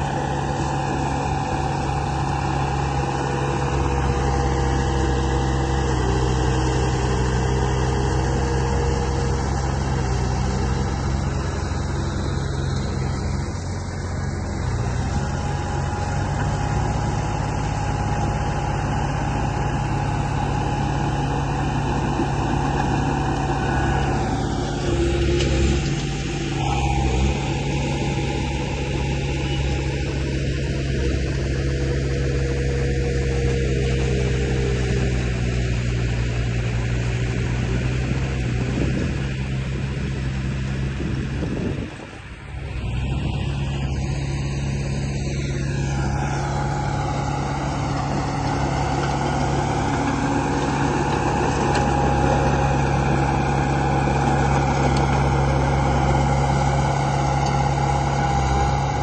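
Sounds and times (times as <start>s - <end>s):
model vehicle engine drone: 0.0s - 59.0s.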